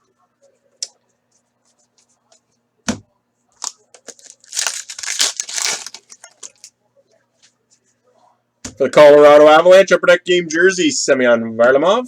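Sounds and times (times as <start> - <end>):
foil pack tearing and crinkling: 3.6 - 6.7.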